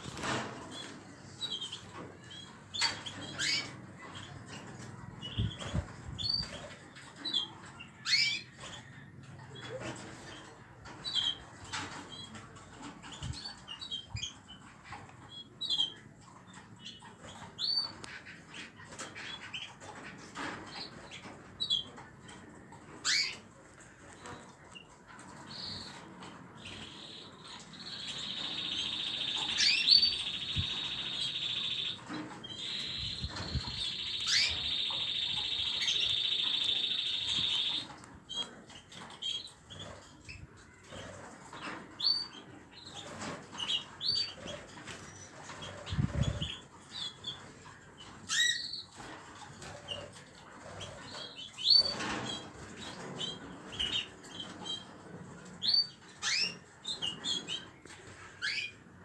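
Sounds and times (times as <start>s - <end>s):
young birds chirping: 0.0s - 12.4s, 25.2s - 55.0s
bird high trill: 26.7s - 37.9s.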